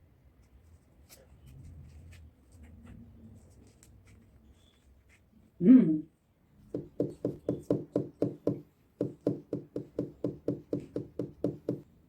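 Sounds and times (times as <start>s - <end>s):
rapid even knocking: 6.7s - 11.8s.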